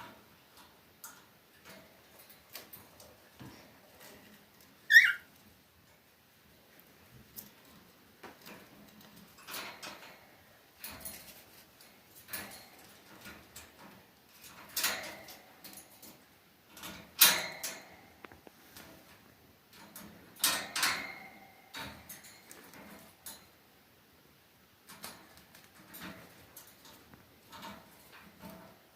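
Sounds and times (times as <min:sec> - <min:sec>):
short high bird chirp: 0:04.9 - 0:05.2
bird scrapes and rustles: 0:07.2 - 0:19.2.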